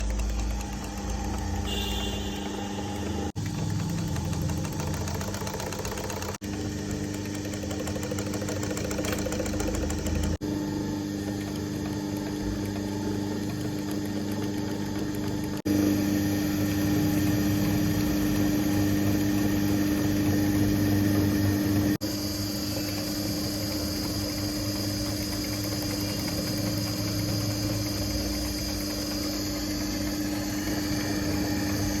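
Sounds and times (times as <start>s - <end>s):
sewing machine running: 0.0s - 32.0s.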